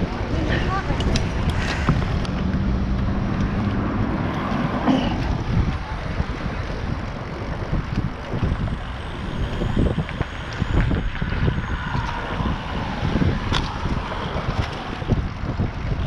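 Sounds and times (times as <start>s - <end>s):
wind rushing on microphone: 0.0s - 16.0s.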